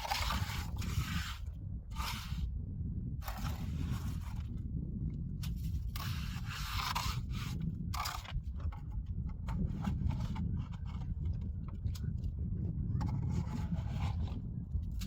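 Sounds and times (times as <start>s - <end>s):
scraping strokes: 0.0s - 2.5s, 5.4s - 8.8s
steady low rumble: 0.0s - 15.0s.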